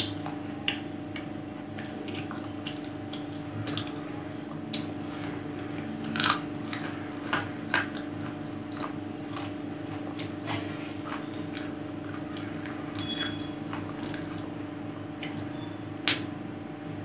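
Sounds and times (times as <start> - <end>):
steady low hum: 0.0 - 17.0
person crunching chicken bones: 4.7 - 14.5.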